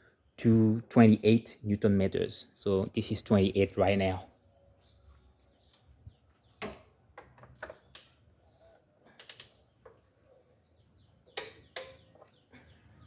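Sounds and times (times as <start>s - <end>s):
hand tools clicking and tapping: 9.1s - 10.1s, 11.3s - 12.4s.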